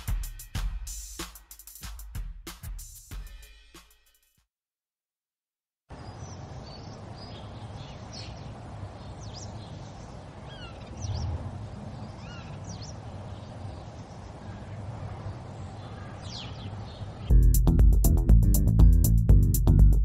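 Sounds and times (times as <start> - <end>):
small birds chirping: 5.9 - 17.4.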